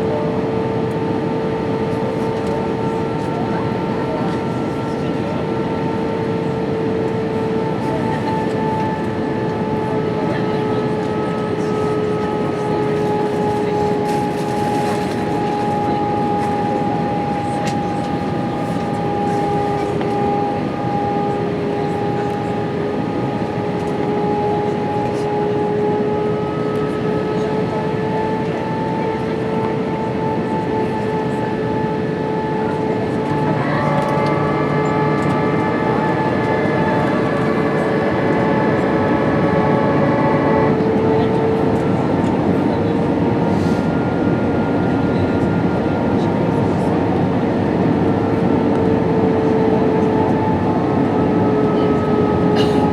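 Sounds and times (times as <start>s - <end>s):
jet engines humming: 0.0s - 52.9s.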